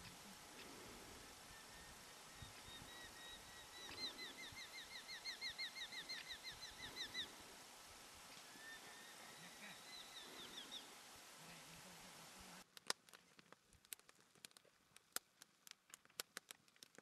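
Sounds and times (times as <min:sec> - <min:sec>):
songbird singing: 0:00.0 - 0:12.6.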